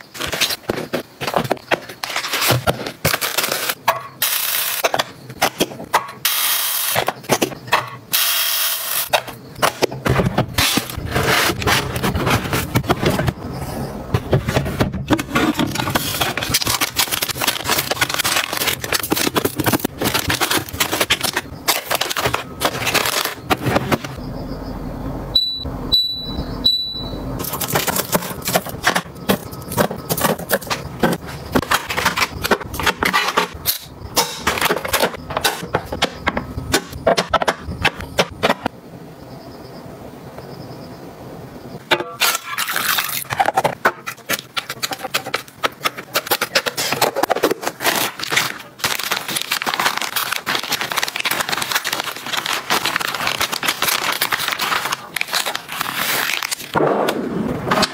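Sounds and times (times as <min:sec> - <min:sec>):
packaging rustling: 0:00.0 - 0:03.8, 0:14.2 - 0:24.2, 0:27.4 - 0:33.4, 0:42.7 - 0:56.8
items clicking and knocking: 0:00.0 - 0:08.0, 0:09.0 - 0:24.2, 0:27.4 - 0:38.7, 0:41.8 - 0:56.8
short high electronic beeps: 0:25.4 - 0:27.2.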